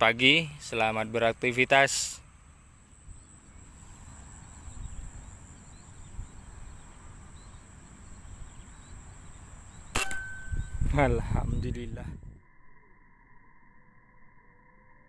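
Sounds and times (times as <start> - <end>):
high-pitched insect drone: 0.0 - 15.0
sharp click: 9.9 - 10.9.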